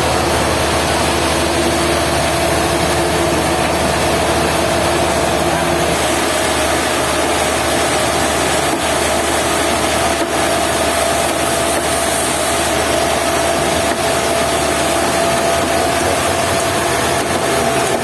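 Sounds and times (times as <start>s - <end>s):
sawmill machine cutting wood: 0.0s - 18.0s.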